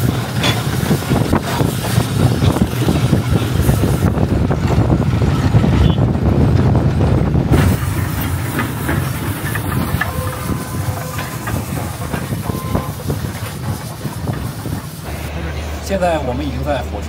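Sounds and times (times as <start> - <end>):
steam hissing: 0.0 - 5.0, 7.5 - 16.0
heavy low rumble: 0.0 - 17.0
wheels clicking over rail joints: 0.0 - 17.0.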